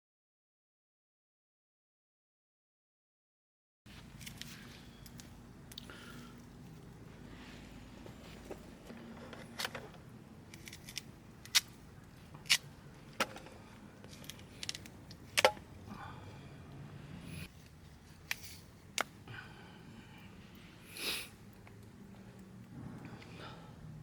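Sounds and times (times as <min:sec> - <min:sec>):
small hard objects clicking: 0:09.3 - 0:15.8.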